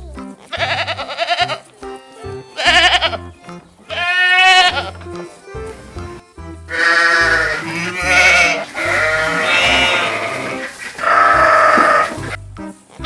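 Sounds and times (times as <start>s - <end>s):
low background music: 0.0s - 13.0s
farm animals bleating: 0.4s - 1.7s, 2.3s - 5.1s, 6.7s - 12.4s.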